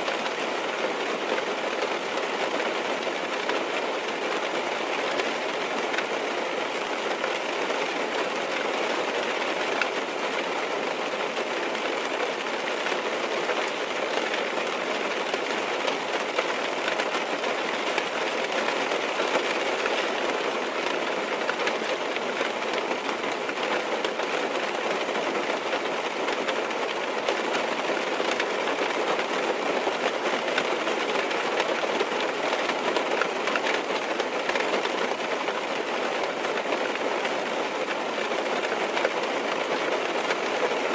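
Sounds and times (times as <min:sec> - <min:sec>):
rain on a car roof: 0:00.0 - 0:40.9.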